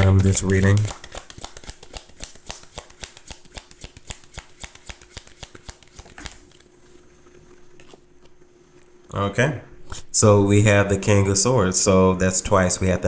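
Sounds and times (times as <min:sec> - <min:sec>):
cards being shuffled: 0:00.0 - 0:07.0.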